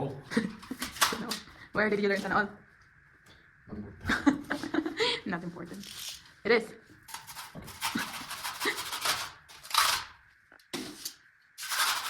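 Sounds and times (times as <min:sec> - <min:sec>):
scratchy scraping of glue: 0:07.1 - 0:10.1, 0:10.8 - 0:12.0.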